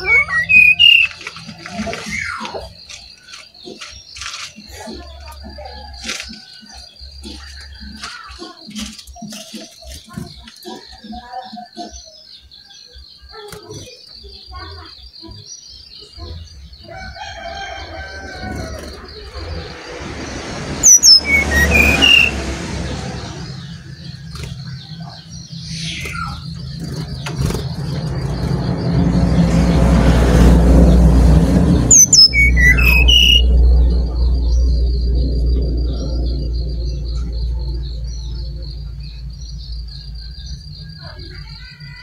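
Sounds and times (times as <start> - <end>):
flycatcher calling: 0.0 - 29.5, 31.0 - 42.0
wind rumble on microphone: 26.6 - 40.5
steady high buzz: 33.0 - 40.8.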